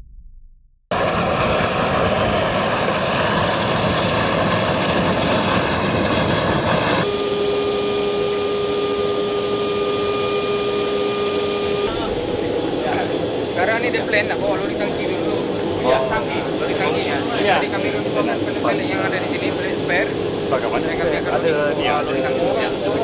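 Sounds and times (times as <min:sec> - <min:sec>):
dull engine hum: 0:00.9 - 0:07.1
high whining tones: 0:00.9 - 0:14.2
turboprop engines running: 0:00.9 - 0:23.0.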